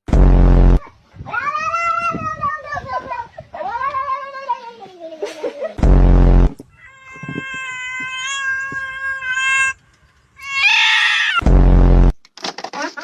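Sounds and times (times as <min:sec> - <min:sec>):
loud burst of noise: 0:00.1 - 0:01.0, 0:05.8 - 0:06.6, 0:11.4 - 0:12.2
cat yowling: 0:01.3 - 0:02.8, 0:06.7 - 0:09.8, 0:10.4 - 0:11.4.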